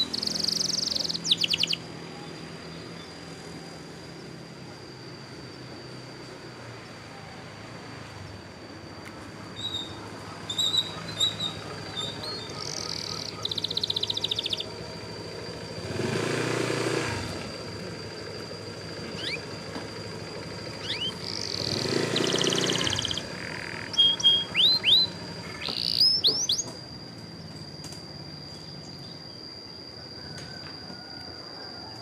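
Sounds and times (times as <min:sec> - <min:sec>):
canary singing: 0:00.0 - 0:03.3, 0:09.5 - 0:16.4, 0:18.8 - 0:26.8.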